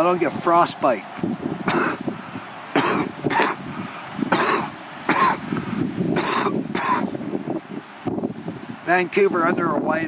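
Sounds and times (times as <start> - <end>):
man coughing: 1.7 - 2.0, 2.8 - 3.6, 4.3 - 5.4, 6.2 - 7.1.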